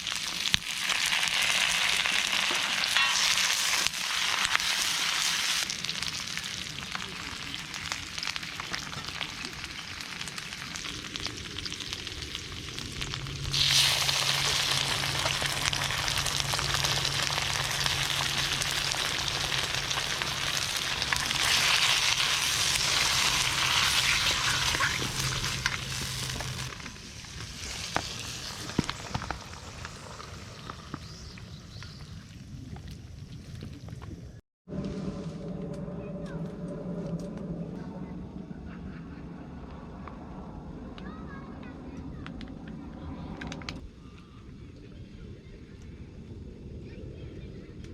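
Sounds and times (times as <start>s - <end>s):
food sizzling in a wok: 0.0s - 31.4s.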